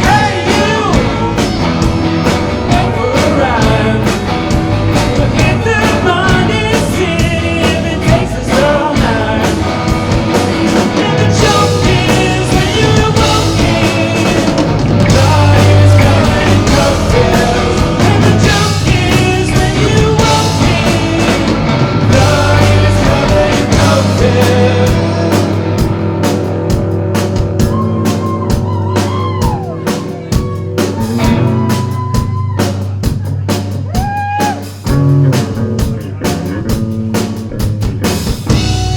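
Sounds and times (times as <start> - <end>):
person singing: 0.0 - 1.8, 2.6 - 25.9
electric guitar: 0.0 - 32.9
bass guitar: 0.0 - 38.9
drum kit: 0.0 - 38.9.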